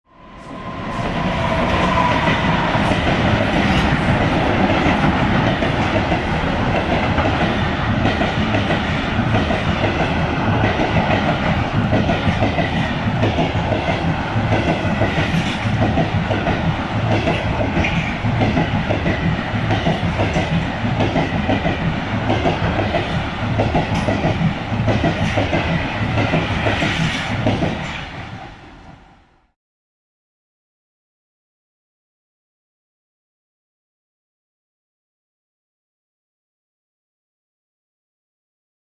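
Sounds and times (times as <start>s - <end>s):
train wheels clattering over rail joints: 2.1s - 28.1s.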